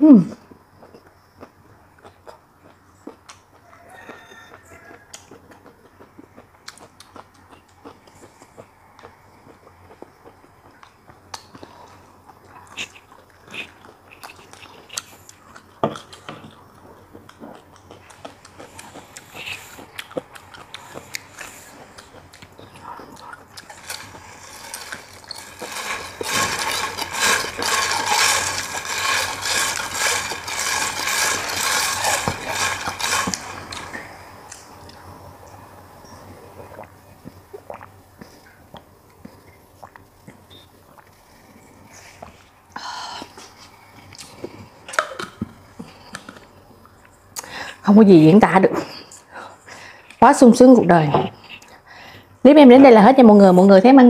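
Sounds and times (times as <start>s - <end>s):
chewing: 0.8s - 35.1s, 36.0s - 42.5s, 43.2s - 47.5s
loud rapid crackling: 23.6s - 34.0s.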